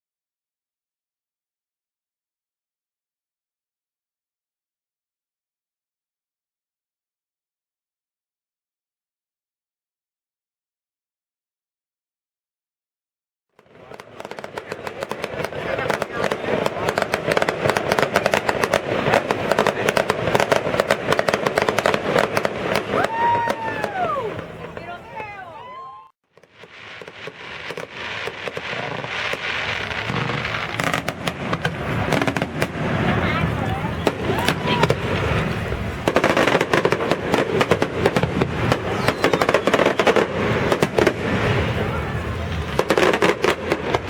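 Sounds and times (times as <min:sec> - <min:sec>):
fireworks crackling: 0:13.6 - 0:44.0.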